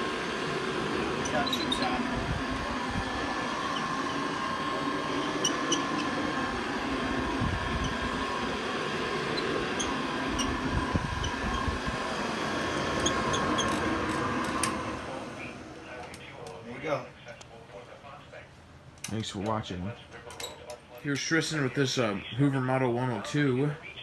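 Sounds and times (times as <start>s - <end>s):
vacuum cleaner humming and whining: 0.0s - 16.2s.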